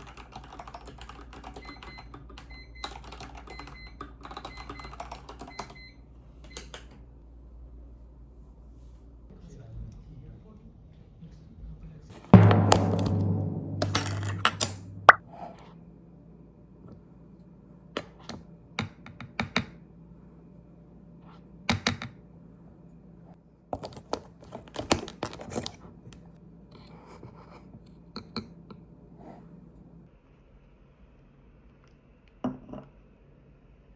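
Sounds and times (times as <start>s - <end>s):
computer keyboard typing: 0.0s - 6.9s.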